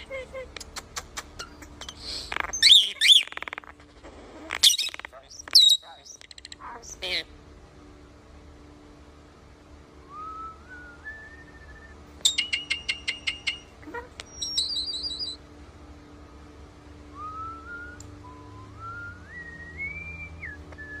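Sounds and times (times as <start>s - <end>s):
bird clicks and warble: 0.6s - 6.7s, 12.2s - 14.3s
starling whistling: 1.9s - 3.6s, 4.6s - 6.2s, 14.3s - 15.4s, 17.2s - 21.0s.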